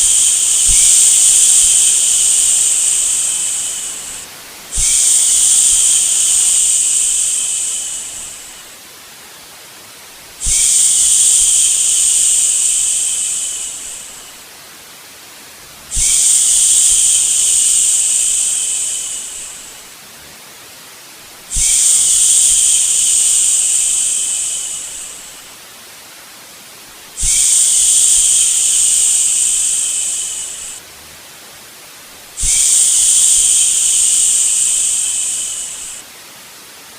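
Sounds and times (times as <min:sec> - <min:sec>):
person shushing: 0:00.0 - 0:08.6, 0:10.4 - 0:14.4, 0:15.9 - 0:19.8, 0:21.5 - 0:25.4, 0:27.2 - 0:30.8, 0:32.4 - 0:36.0
white noise hiss: 0:00.0 - 0:36.9.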